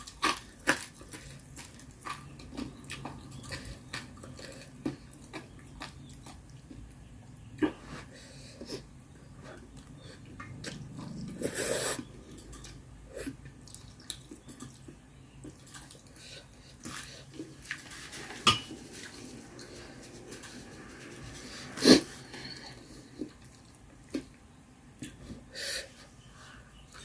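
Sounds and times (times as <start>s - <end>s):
person chewing and biting: 0.0s - 6.5s.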